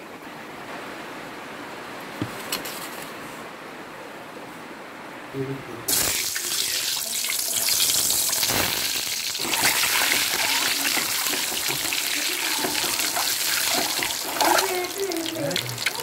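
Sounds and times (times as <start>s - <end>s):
eggs sizzling in hot oil: 5.9s - 16.0s.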